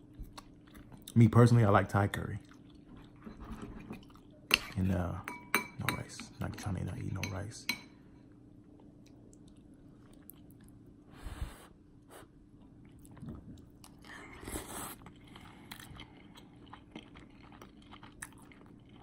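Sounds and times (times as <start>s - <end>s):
person chewing food: 0.0s - 1.2s, 8.7s - 11.0s, 12.5s - 19.0s
faint steady hum: 0.0s - 19.0s.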